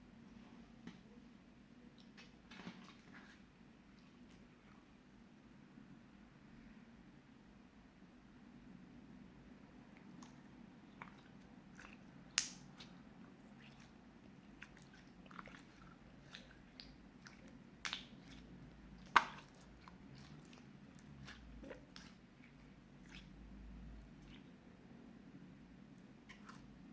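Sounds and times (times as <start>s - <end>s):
slime kneaded by hand: 10.0s - 24.6s.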